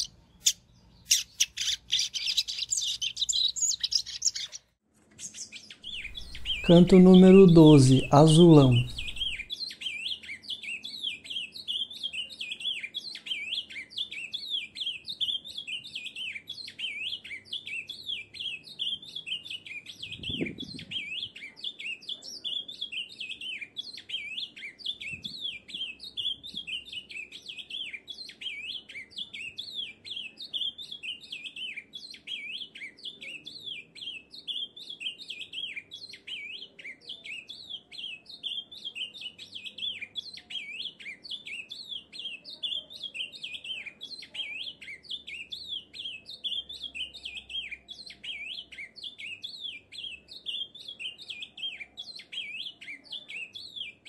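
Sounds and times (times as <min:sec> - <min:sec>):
bird singing quick high chirps: 0:00.0 - 0:10.0.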